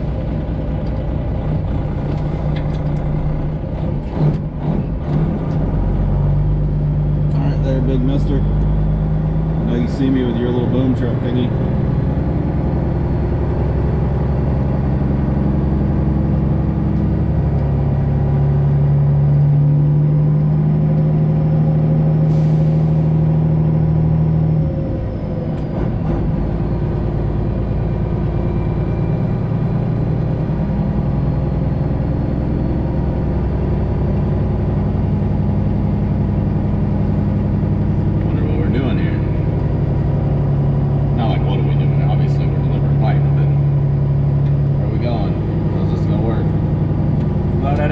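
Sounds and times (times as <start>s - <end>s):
truck diesel engine running: 0.0s - 47.9s.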